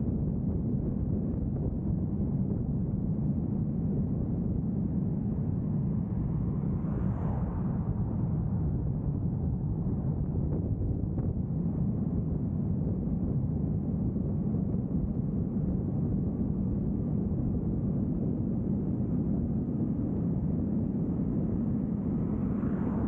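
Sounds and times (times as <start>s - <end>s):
vehicle driving on road: 5.2s - 11.4s, 21.1s - 23.0s.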